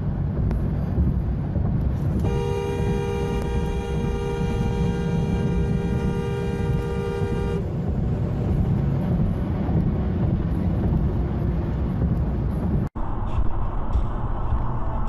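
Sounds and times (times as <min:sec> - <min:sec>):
low vehicle rumble: 0:00.0 - 0:15.0
car horn long note: 0:02.2 - 0:07.6.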